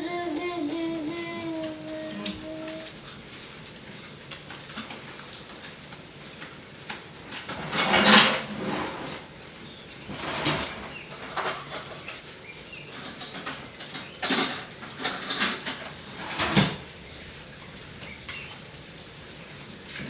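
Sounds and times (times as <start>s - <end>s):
objects knocking and clattering: 7.3s - 9.2s, 10.1s - 12.3s, 12.9s - 16.9s.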